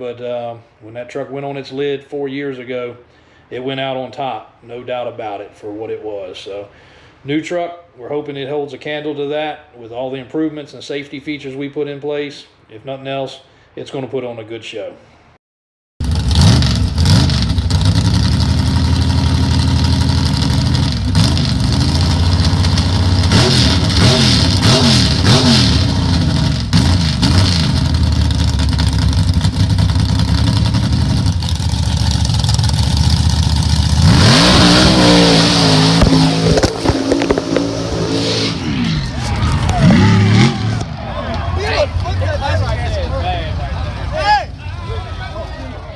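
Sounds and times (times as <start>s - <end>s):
truck engine revving: 16.0s - 41.1s.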